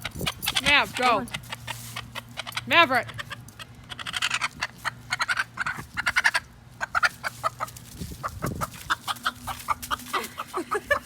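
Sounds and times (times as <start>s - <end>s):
chicken clucking: 0.5s - 11.0s.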